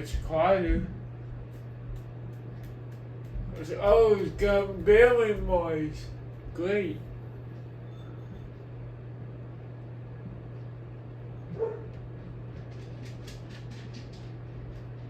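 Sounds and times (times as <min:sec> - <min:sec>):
ceiling fan motor hum: 0:00.0 - 0:15.0
dog yipping: 0:11.5 - 0:11.9.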